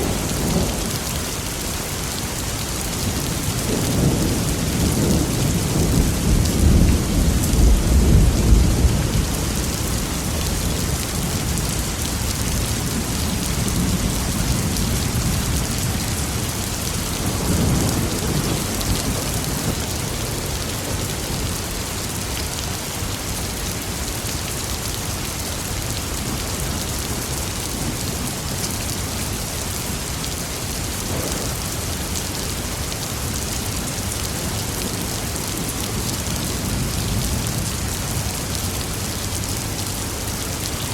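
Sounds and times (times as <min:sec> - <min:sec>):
thunder rumbling: 0:00.0 - 0:02.0, 0:03.0 - 0:21.4
heavy rain falling: 0:00.0 - 0:40.9.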